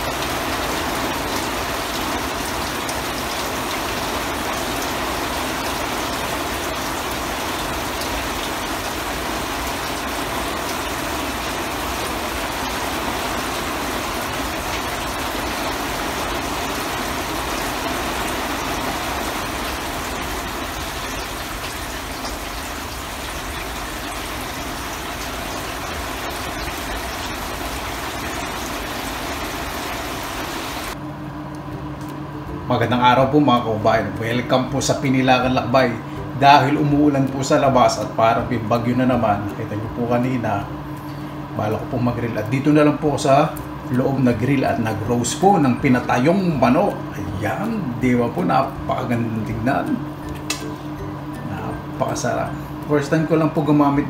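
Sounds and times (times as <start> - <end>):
steady rain on garden: 0.0 - 31.0.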